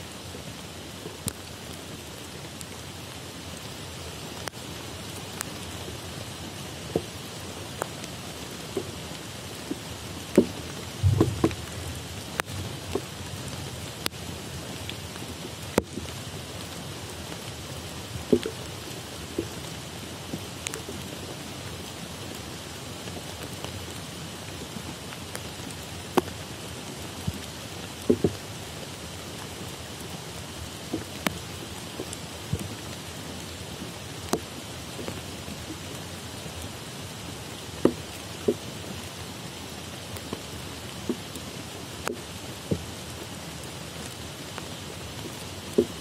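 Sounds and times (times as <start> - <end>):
rain on foliage: 0.0 - 46.0
heavy drops ticking: 10.4 - 13.1
low thump: 11.0 - 11.9.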